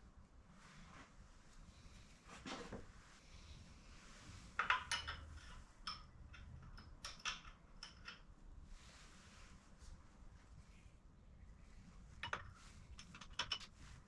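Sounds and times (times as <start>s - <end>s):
metal tools clinking: 4.6s - 8.3s.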